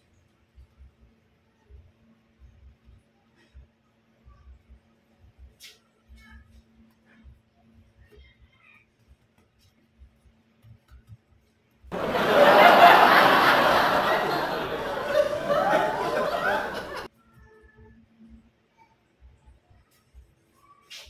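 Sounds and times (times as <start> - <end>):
crowd laughing: 11.9 - 17.1.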